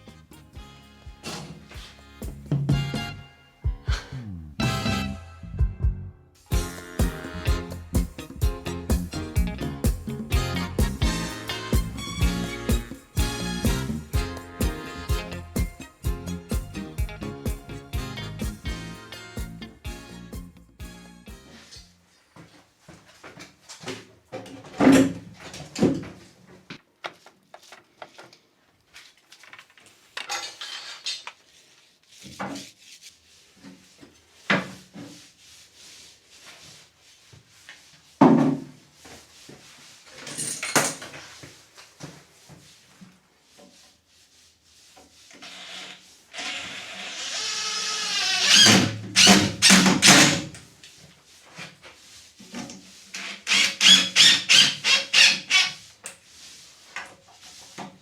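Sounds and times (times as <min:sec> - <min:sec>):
power drill whining: 0:45.4 - 0:50.4, 0:53.2 - 0:55.8
rasping strokes: 0:51.3 - 0:57.8.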